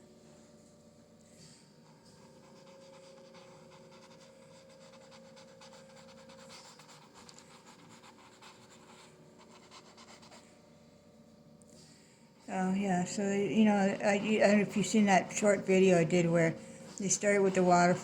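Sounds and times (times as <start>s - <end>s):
faint steady hum: 0.0s - 18.0s
paintbrush scratching on canvas: 1.8s - 10.6s, 12.5s - 18.0s.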